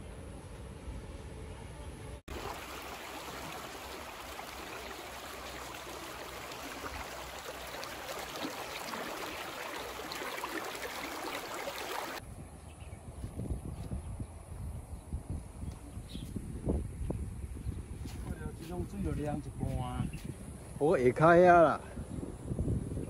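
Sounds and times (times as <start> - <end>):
creek water rushing over rocks: 2.3 - 12.2.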